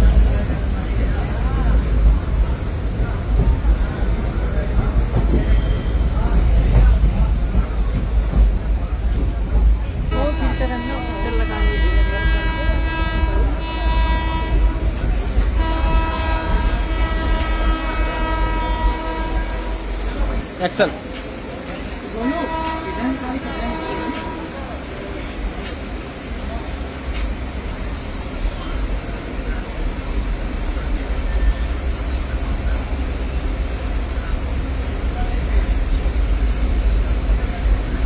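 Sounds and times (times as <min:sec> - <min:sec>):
train rumbling: 0:00.0 - 0:38.0
train horn blasts: 0:10.1 - 0:20.4, 0:22.2 - 0:24.8.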